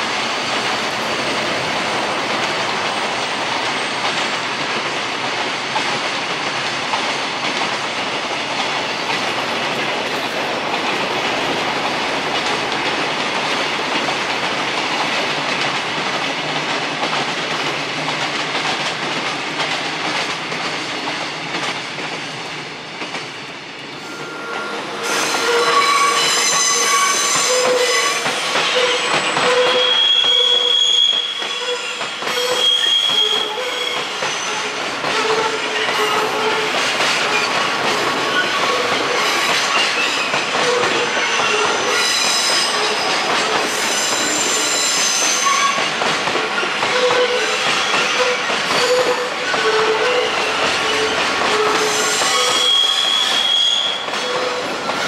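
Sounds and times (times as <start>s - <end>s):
train wheels rumbling on rail: 0.0s - 55.0s
train wheels squealing: 24.0s - 45.9s, 46.9s - 55.0s.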